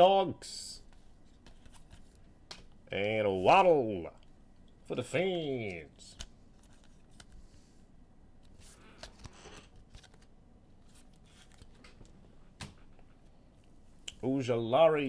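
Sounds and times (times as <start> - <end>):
cards rustling: 0.8 - 3.6, 5.6 - 7.7, 8.4 - 12.8.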